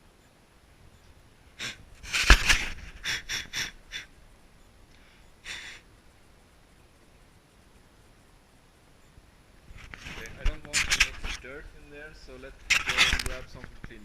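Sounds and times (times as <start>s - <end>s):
hissing puffs of air: 1.6s - 4.2s.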